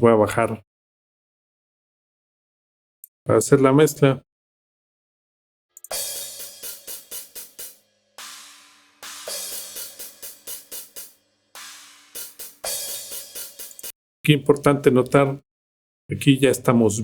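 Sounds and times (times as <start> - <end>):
hi-hats: 5.8 - 13.9
ringing cymbal washes: 5.9 - 13.9
sharp cymbal strikes: 5.9 - 13.9.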